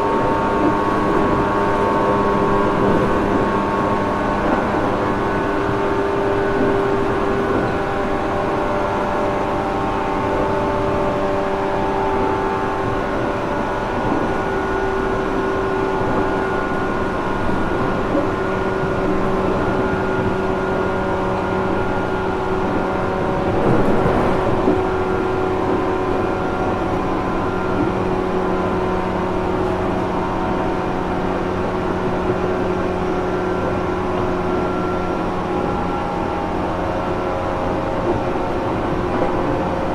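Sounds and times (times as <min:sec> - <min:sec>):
train motor whine: 0:00.0 - 0:39.9
train rumble: 0:00.0 - 0:39.9.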